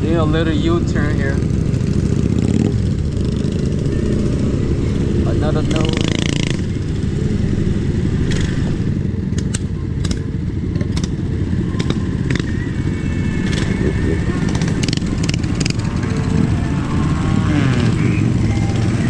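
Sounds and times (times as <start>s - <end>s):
road rumble: 0.0s - 19.0s
wind buffeting microphone: 0.0s - 19.0s
clicks and rattles from bumps: 9.3s - 12.5s, 13.4s - 15.8s.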